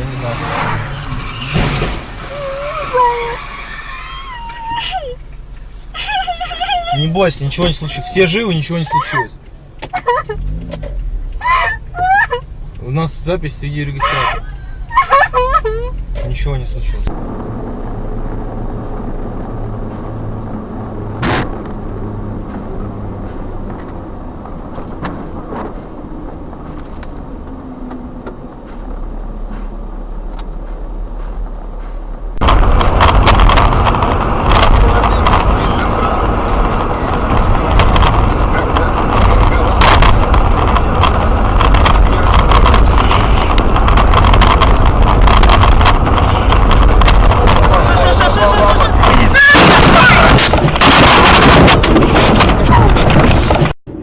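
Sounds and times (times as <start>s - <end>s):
car engine and road noise: 0.0s - 54.0s
rapid irregular clicks and knocks: 7.2s - 16.9s, 22.4s - 35.7s, 36.4s - 53.8s.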